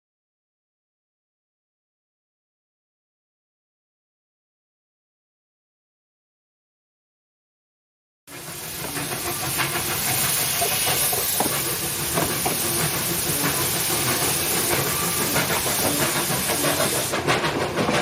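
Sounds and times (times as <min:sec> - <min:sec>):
steam locomotive hissing: 0:08.3 - 0:18.0
metal clanks and knocks: 0:08.8 - 0:18.0.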